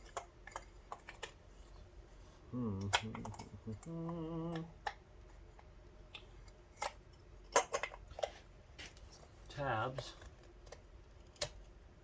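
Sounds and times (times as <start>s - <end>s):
man humming: 2.5s - 4.8s.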